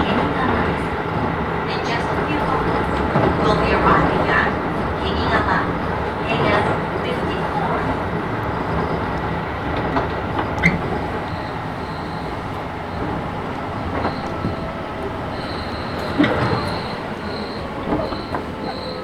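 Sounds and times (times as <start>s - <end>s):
rail-joint clicks: 0.0s - 19.0s
train wheels rumbling on rail: 0.0s - 19.0s
faint high squeal: 10.6s - 19.0s.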